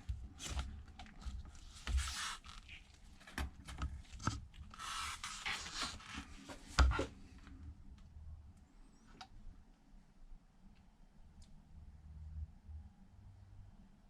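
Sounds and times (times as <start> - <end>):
tablet handling scrapes and clicks: 0.4 - 7.2.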